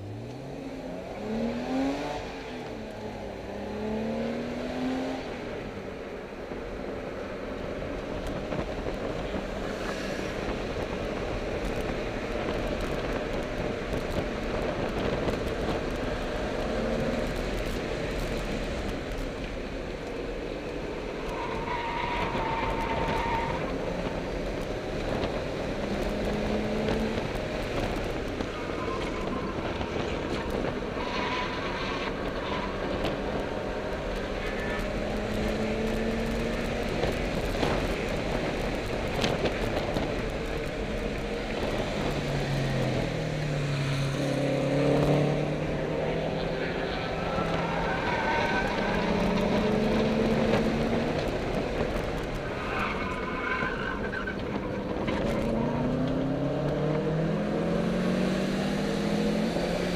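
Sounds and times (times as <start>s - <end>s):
car engine revving: 0.0s - 5.8s, 21.0s - 59.9s
wind and road noise: 0.0s - 59.9s.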